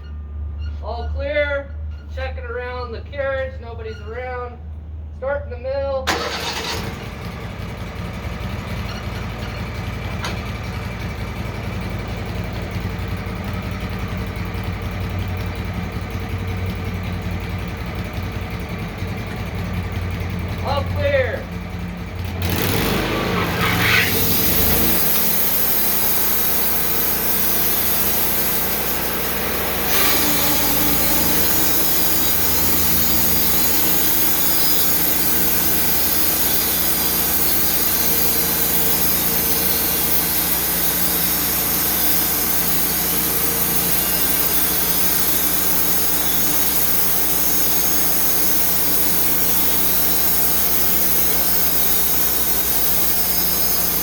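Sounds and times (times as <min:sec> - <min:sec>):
sawmill cutting log: 0:19.2 - 0:54.0.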